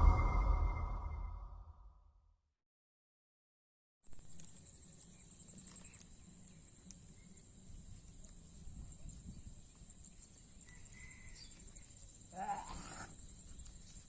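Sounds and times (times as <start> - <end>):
low wind rumble: 0.0 - 1.8.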